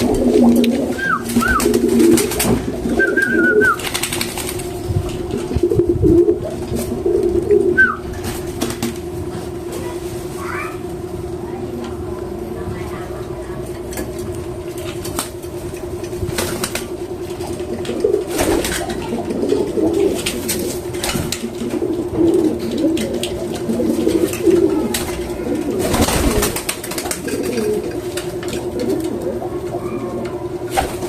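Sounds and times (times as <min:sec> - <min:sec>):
pigeon cooing: 0:00.0 - 0:08.8, 0:15.8 - 0:31.0.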